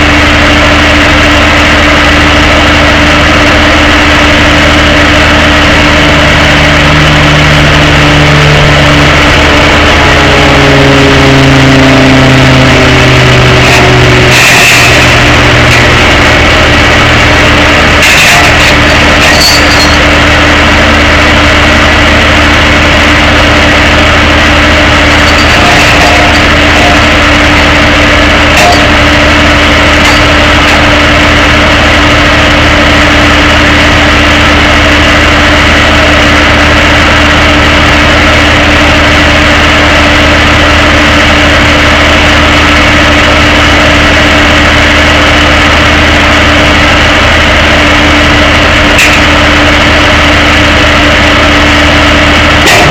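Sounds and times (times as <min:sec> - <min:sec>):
truck engine idling: 0:00.0 - 0:52.9.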